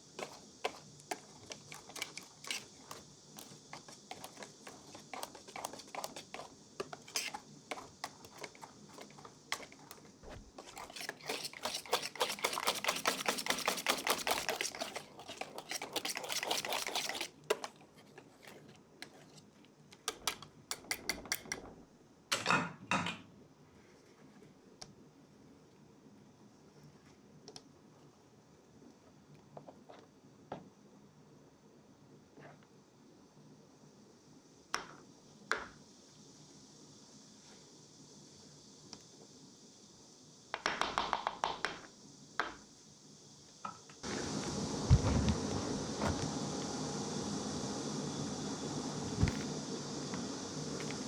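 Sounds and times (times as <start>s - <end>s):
utensils clicking and scraping: 0.1s - 19.5s
baking utensils tapping and clicking: 10.6s - 17.8s, 20.0s - 21.7s, 40.6s - 42.6s.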